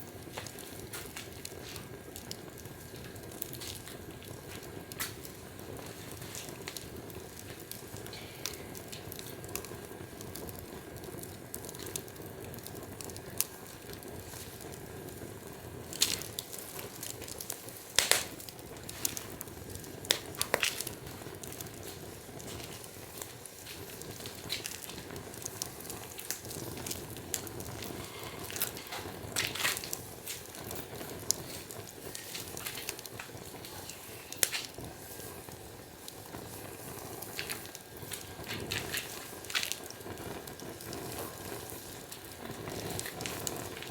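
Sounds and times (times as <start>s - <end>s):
wood fire crackling: 0.0s - 43.9s
loud sharp fire pops: 15.2s - 43.9s.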